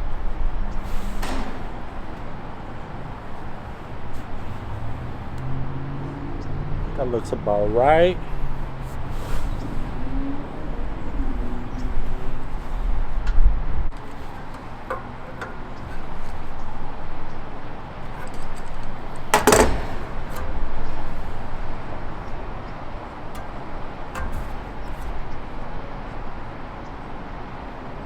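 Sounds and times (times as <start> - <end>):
small clicks and knocks: 13.2 - 27.1
loud clatter: 14.0 - 26.2.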